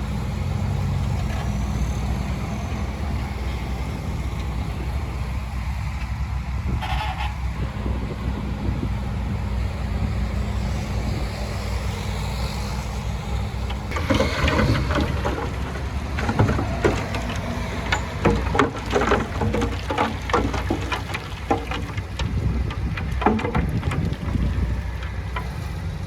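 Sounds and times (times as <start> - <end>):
diesel engine running: 0.0 - 26.0
soil and stones crunching: 12.8 - 26.0.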